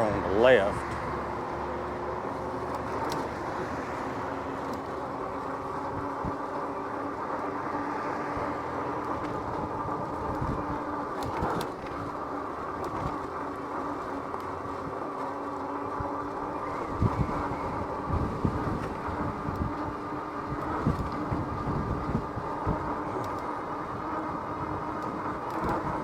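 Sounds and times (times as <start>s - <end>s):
electric hub motor whining: 0.0s - 26.0s
tyre noise on pavement: 0.0s - 26.0s.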